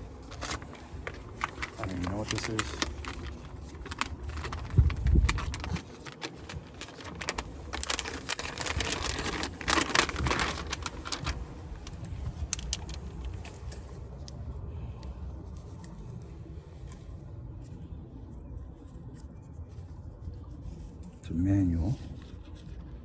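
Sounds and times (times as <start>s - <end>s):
wrapping rustling and clicks: 0.0s - 14.0s.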